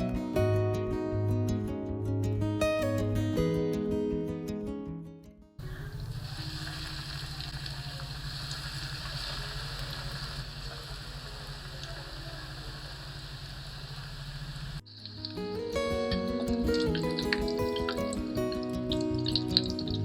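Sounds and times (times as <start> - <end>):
food deep-frying in hot oil: 5.8 - 18.2, 19.1 - 20.0.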